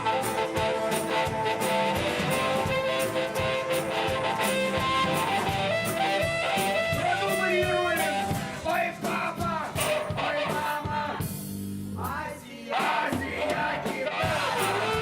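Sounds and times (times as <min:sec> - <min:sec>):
electric guitar: 0:00.0 - 0:08.6
rock band playing: 0:00.0 - 0:12.0, 0:13.2 - 0:15.0
steady drum beat: 0:00.0 - 0:15.0.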